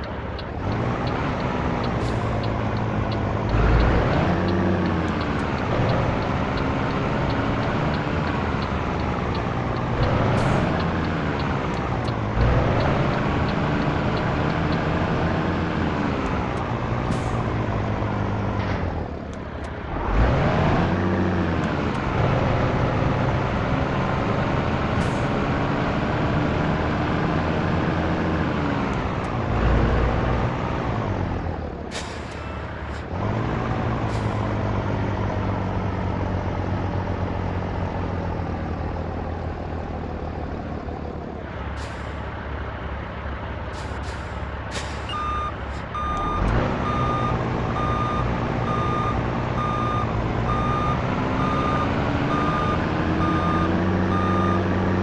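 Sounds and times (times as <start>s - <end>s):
diesel truck engine revving: 0.0s - 55.0s
reversing alarm beeping: 45.0s - 54.8s.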